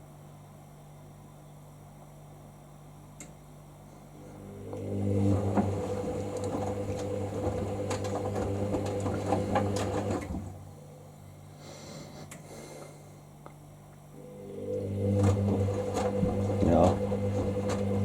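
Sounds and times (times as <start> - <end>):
washing machine drum motor humming: 4.2 - 11.5, 14.1 - 18.0
wet clothes sloshing and knocking: 5.2 - 10.6, 15.1 - 18.0.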